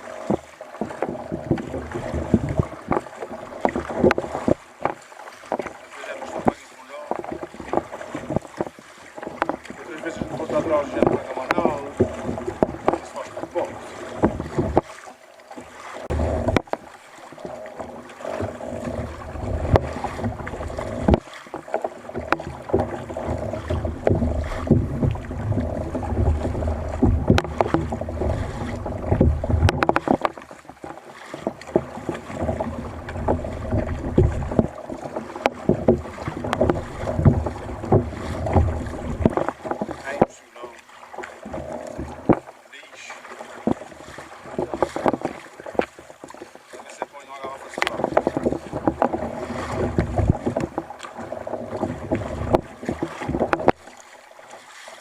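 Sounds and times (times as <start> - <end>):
water sloshing around kayak: 0.0 - 55.0
wind buffeting microphone: 22.2 - 30.3, 31.8 - 40.0
sharp knocks: 22.2 - 30.4, 31.4 - 40.4.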